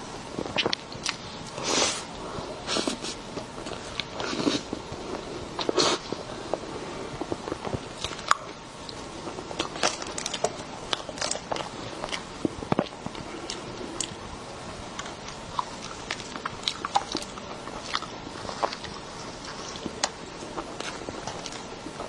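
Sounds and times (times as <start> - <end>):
mouth clicks and smacks: 0.4 - 1.2
person chewing soft cake: 0.4 - 22.0.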